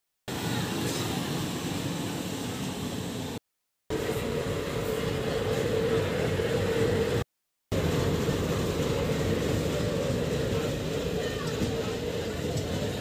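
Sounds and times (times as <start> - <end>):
train rumbling: 0.3 - 13.0
constant droning hum: 7.8 - 13.0.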